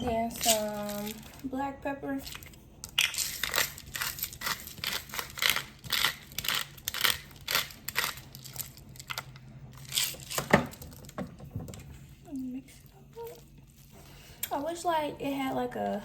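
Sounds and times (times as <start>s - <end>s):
pepper grinder crunching: 0.3s - 1.4s, 2.2s - 11.2s.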